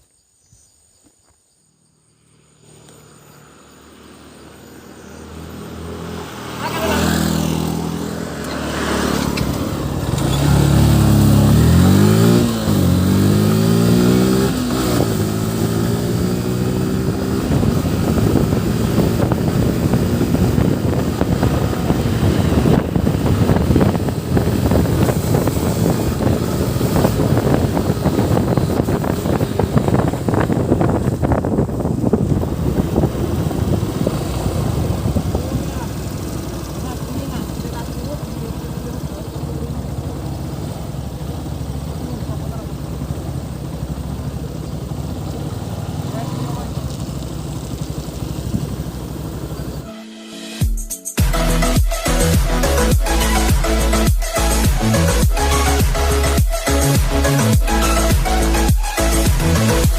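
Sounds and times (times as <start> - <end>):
motorcycle engine accelerating: 1.9 - 49.9, 51.2 - 59.9
rushing wind noise with fluttering: 13.1 - 36.5.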